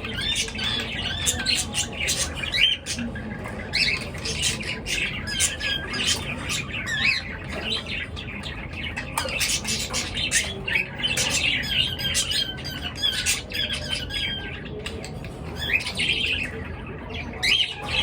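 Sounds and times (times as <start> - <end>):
birds chirping and squawking: 0.0 - 18.0.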